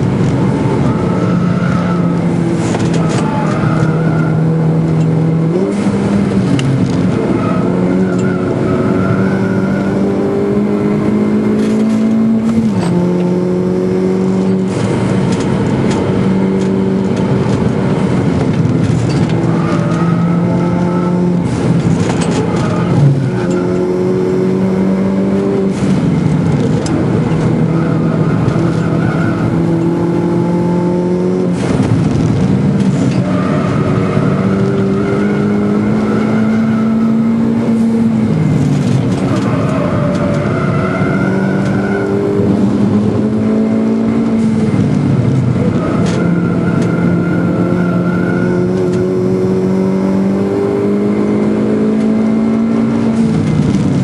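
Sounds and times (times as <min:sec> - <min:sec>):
car engine revving: 0:00.0 - 0:54.0
road and wind noise: 0:00.0 - 0:54.0.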